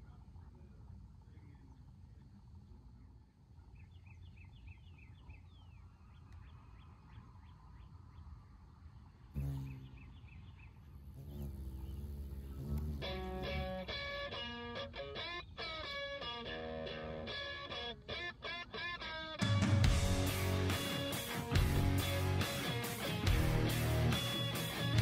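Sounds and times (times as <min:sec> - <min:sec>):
small bird chirping: 0:02.9 - 0:18.3
music: 0:13.1 - 0:25.0.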